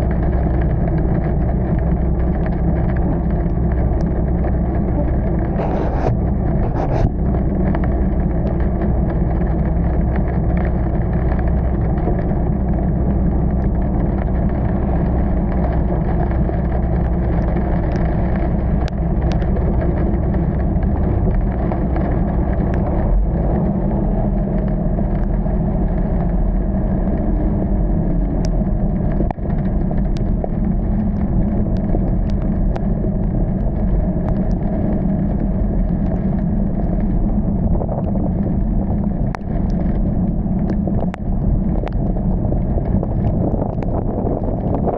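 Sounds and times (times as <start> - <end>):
car engine and road noise: 0.0 - 44.9
light ticks: 7.6 - 23.0, 28.3 - 37.1, 39.2 - 42.2.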